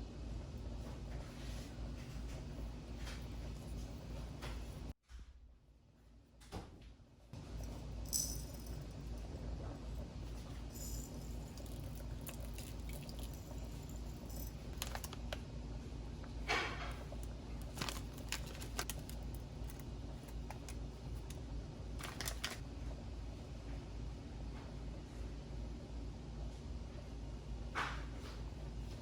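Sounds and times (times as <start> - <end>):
steady low hum: 0.0 - 29.0
scrape: 1.2 - 2.2.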